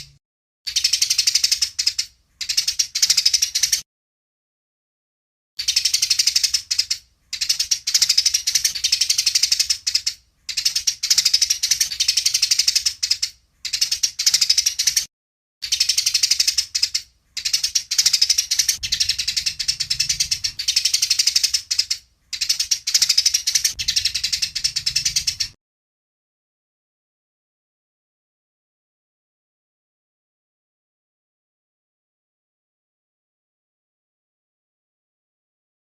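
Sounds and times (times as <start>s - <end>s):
sparrows chattering chirps: 0.0s - 3.8s, 5.6s - 25.6s.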